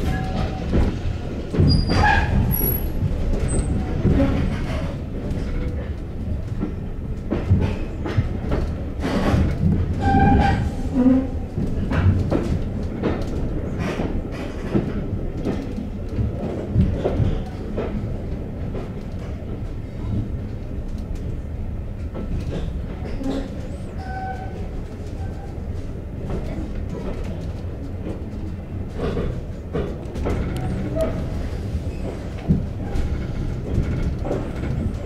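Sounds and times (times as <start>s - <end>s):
train rumbling: 0.0s - 35.0s
wheels clicking over rail joints: 26.2s - 35.0s.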